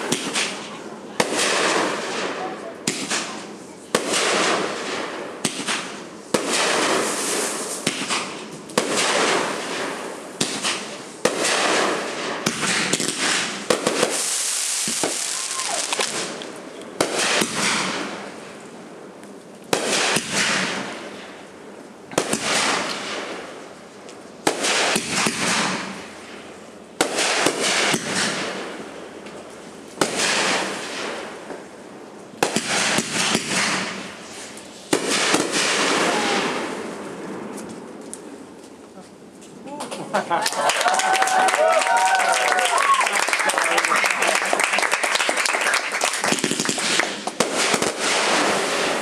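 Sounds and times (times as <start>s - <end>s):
fireworks hissing: 0.0s - 18.7s, 32.4s - 38.8s, 46.0s - 49.0s
fireworks bangs: 0.0s - 38.8s, 40.1s - 49.0s.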